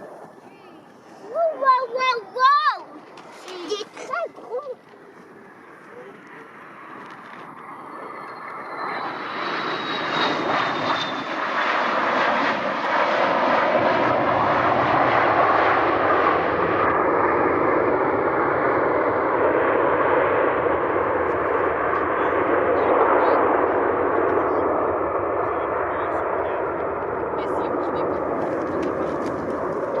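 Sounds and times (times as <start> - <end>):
airliner engines roaring: 0.0 - 30.0
faint high whine: 5.0 - 11.3.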